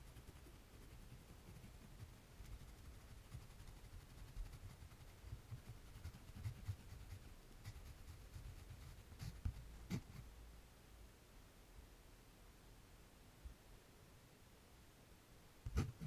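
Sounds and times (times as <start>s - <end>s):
pencil scratching on paper: 0.0s - 10.2s, 15.7s - 16.0s.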